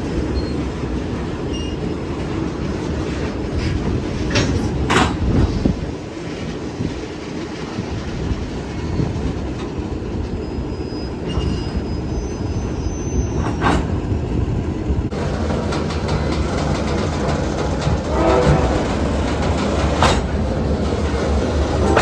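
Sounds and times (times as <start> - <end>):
freight cars rumbling on rails: 0.0 - 22.0
wheels clicking over rail joints: 0.4 - 10.4, 15.0 - 22.0
faint wheel squeal: 1.5 - 2.0, 10.4 - 13.9.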